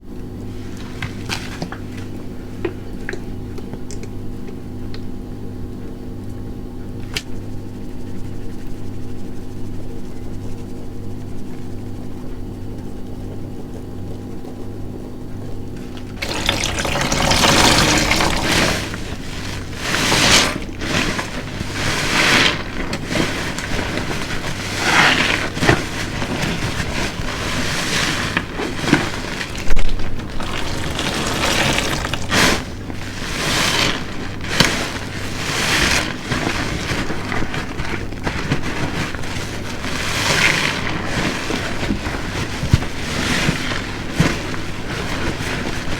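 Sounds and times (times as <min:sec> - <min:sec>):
running liquid: 0:15.8 - 0:37.7
sponge squelching: 0:15.8 - 0:45.9.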